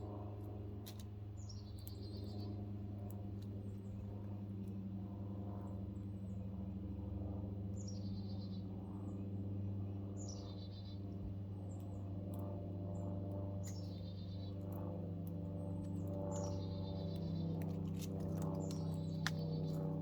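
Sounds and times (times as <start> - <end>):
steady low hum: 0.0 - 20.0
birds calling with stuttering trill: 15.5 - 20.0.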